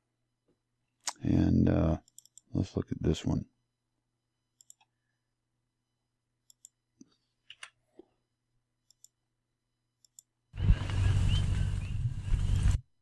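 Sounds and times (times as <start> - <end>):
computer mouse clicks: 2.0 - 2.5, 4.6 - 4.9, 6.4 - 7.8, 8.8 - 9.2, 10.0 - 10.3.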